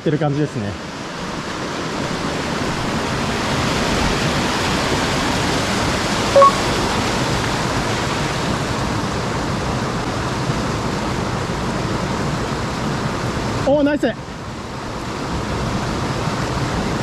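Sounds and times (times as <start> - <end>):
stream rushing over rocks: 0.1 - 17.0
short chirp-like tone: 6.4 - 6.8.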